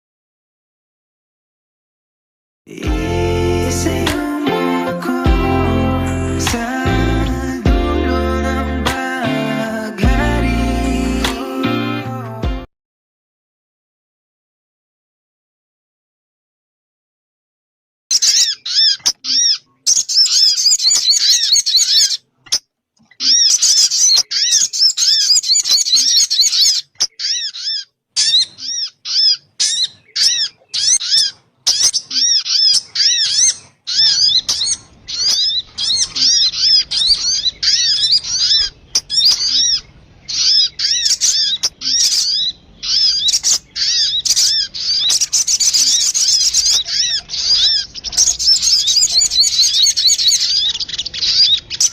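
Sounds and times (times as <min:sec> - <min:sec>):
bird chirping: 0:18.1 - 0:51.9.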